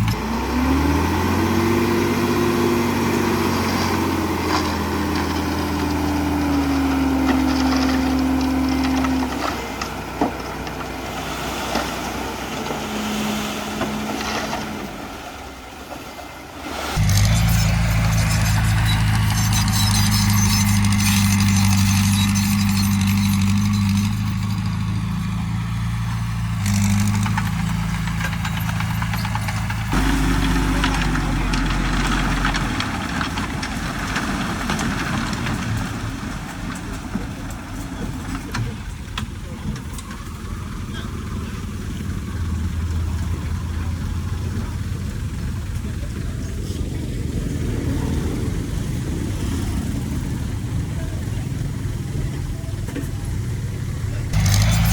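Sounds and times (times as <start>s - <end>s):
heavy machinery diesel engine: 0.0s - 54.9s
sharp clicks and clanks: 17.0s - 25.4s, 26.6s - 35.9s, 54.3s - 54.9s.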